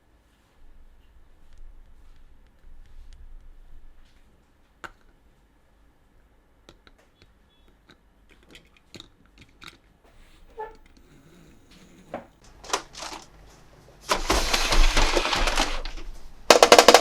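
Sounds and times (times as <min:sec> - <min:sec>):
plastic toy parts clicking: 0:08.3 - 0:09.8, 0:12.6 - 0:13.3, 0:14.1 - 0:17.0.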